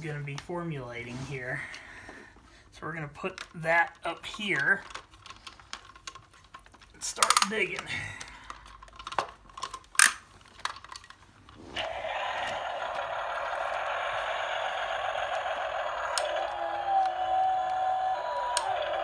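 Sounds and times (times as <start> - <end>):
toy excavator clicks and knocks: 3.0 - 11.2, 14.8 - 19.0.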